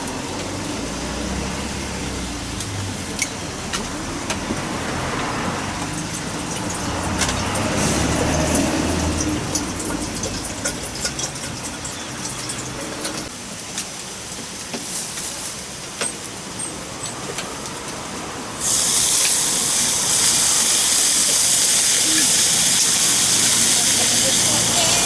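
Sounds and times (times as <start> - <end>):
rain pattering: 0.0 - 25.0
loud steady hiss: 18.4 - 25.0.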